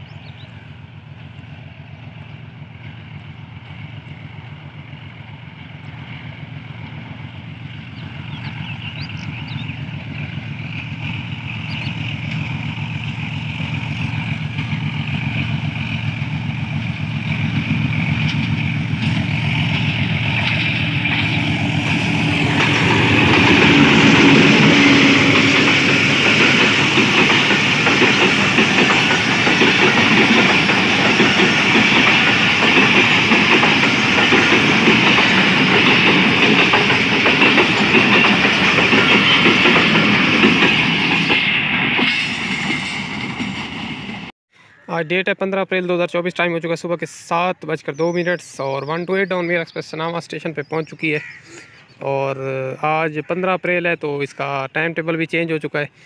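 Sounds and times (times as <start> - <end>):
coaches clattering along rails: 0.0 - 44.3
diesel locomotive engine passing: 0.0 - 44.4.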